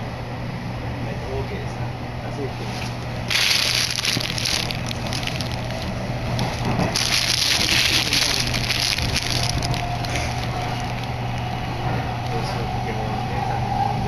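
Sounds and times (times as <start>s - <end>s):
train low rumble: 0.0s - 14.0s
loud crackling hiss: 3.3s - 11.6s.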